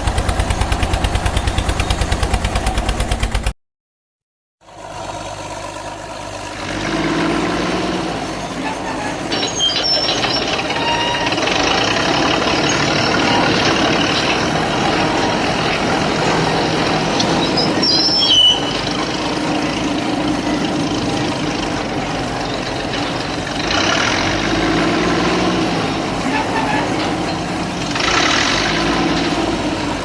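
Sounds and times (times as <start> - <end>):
tractor engine running: 0.0 - 3.6, 4.6 - 30.0
high squeal: 8.8 - 14.5, 16.9 - 19.1.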